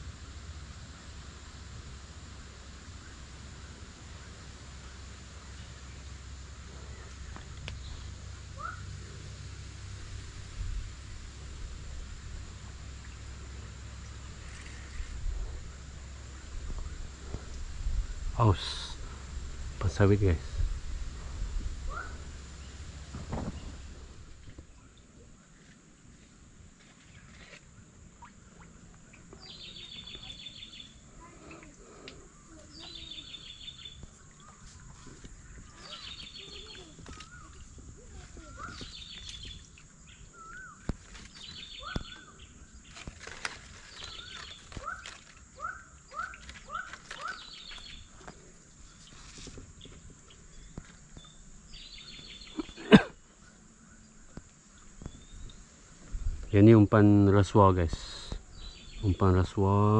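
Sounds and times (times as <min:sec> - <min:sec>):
riverside ambience: 0:00.0 - 0:59.9
bird high trilled call: 0:35.8 - 0:37.6, 0:38.4 - 0:42.6, 0:43.9 - 0:48.1
bird chattering call: 0:45.6 - 0:48.0.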